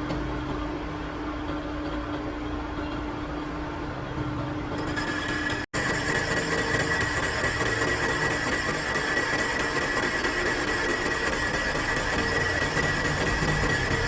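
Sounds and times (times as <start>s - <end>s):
machine running: 4.7s - 14.0s
high-pitched machine whine: 4.8s - 14.0s.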